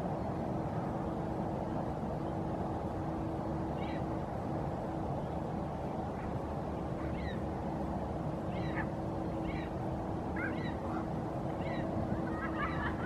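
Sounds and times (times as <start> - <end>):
faint steady hum: 0.0 - 13.0
low background rumble: 0.0 - 13.0
faint bird calls: 3.6 - 4.2, 6.1 - 7.8, 8.4 - 13.0.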